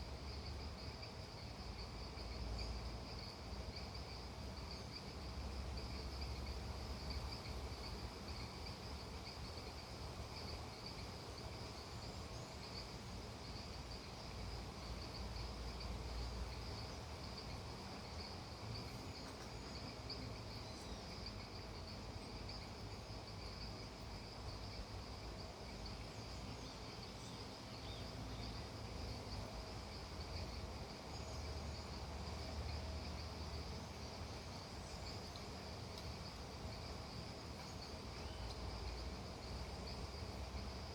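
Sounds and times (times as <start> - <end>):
crickets and insects trilling: 0.0 - 40.9.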